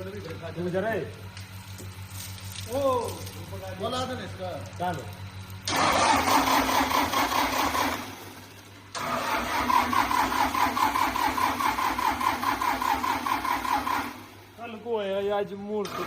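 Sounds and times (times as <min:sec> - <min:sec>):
diesel engine cranking on starter: 0:05.6 - 0:14.5, 0:15.8 - 0:16.0.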